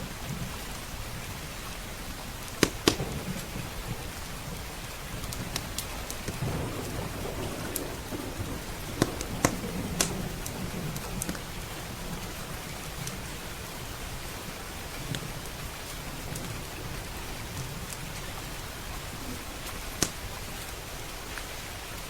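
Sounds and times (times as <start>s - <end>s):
low rumble of thunder: 0.0s - 21.3s
steady rain: 0.0s - 22.0s
wood fire crackling and popping: 2.4s - 13.3s, 19.6s - 21.4s.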